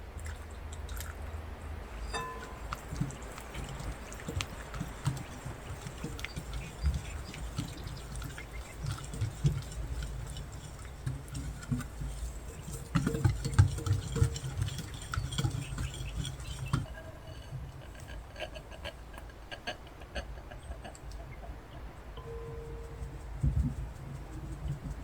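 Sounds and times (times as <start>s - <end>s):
kitchen utensils clicking and tapping: 2.0s - 17.1s.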